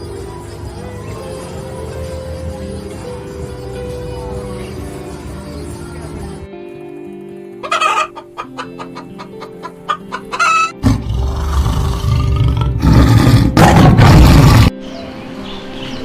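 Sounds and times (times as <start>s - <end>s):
background music: 0.0s - 16.0s
chicken clucking: 7.6s - 10.8s.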